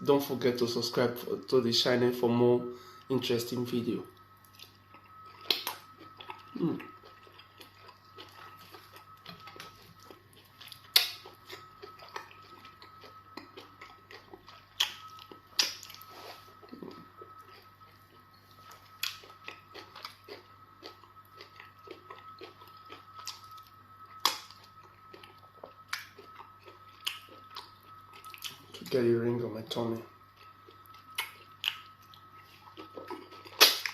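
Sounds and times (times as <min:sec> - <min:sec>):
faint high-pitched tone: 0:00.0 - 0:07.2, 0:08.0 - 0:19.3, 0:20.1 - 0:33.4
chewing and wet mouth smacks: 0:04.4 - 0:16.1, 0:18.6 - 0:28.9, 0:30.4 - 0:33.9.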